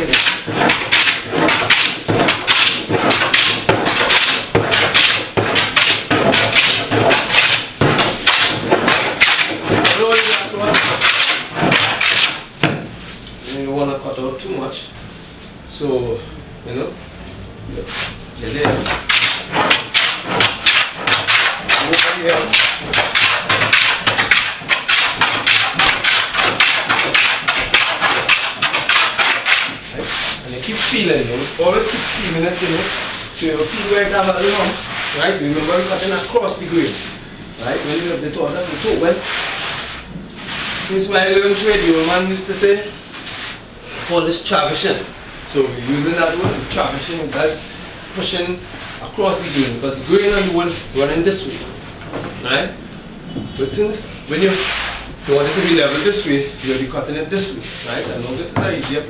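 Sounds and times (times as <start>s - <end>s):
hand plane shaving wood: 0.0s - 12.4s, 19.0s - 31.0s.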